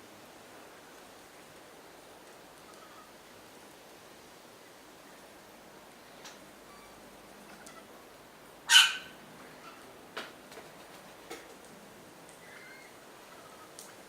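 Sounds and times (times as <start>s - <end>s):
bird harsh call: 8.7s - 9.8s
faint ticks: 13.3s - 14.0s.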